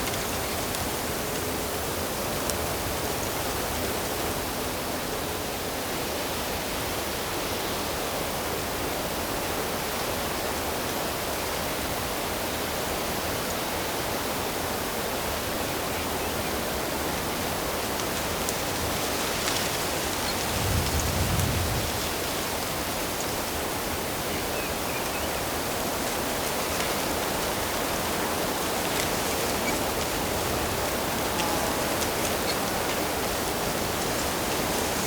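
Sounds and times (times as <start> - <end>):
water rushing: 25.4 - 35.0.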